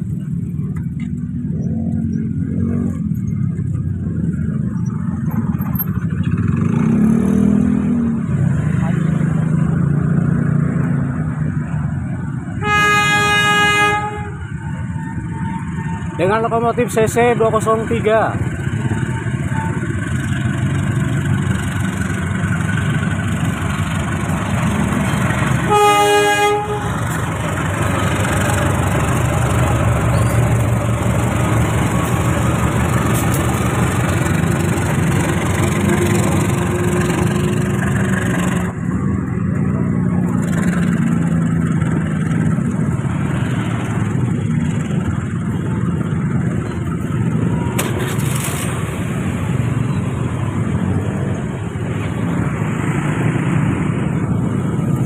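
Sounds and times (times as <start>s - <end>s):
train rumbling on rails: 0.0s - 55.0s
train horn blast: 12.6s - 15.9s, 25.6s - 27.2s.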